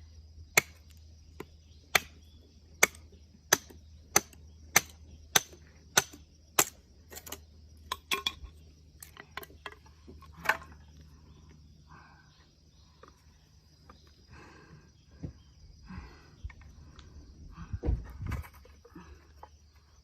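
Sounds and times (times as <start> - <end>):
blade chopping into wood: 0.5 - 2.2, 2.8 - 8.3.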